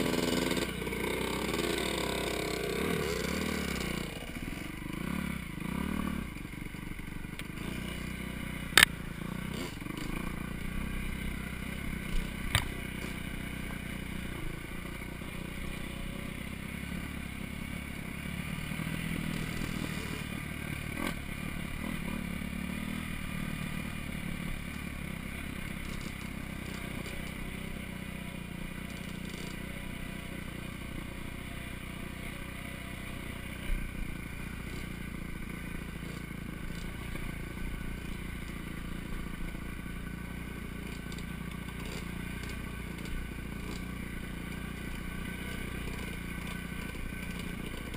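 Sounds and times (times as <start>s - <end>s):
dirt bike engine running: 0.0s - 47.9s
sharp knocks from bike: 12.3s - 13.2s.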